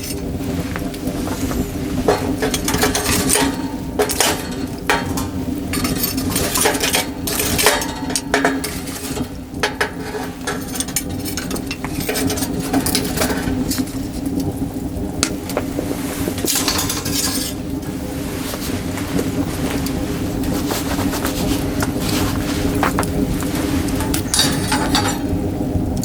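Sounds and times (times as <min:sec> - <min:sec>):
metal cookware clinking: 0:02.0 - 0:14.0, 0:16.5 - 0:17.6, 0:23.8 - 0:25.4.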